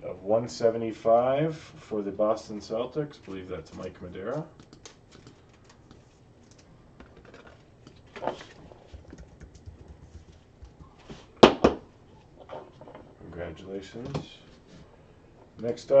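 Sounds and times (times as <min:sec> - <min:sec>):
cards rustling and clicking: 0:04.5 - 0:11.3.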